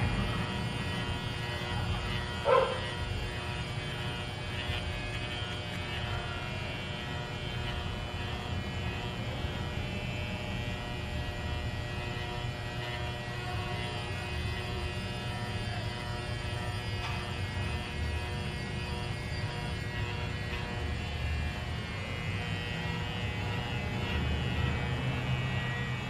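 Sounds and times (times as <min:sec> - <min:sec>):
electric hair clippers humming: 0:00.0 - 0:26.0
dog yelping: 0:02.4 - 0:02.9.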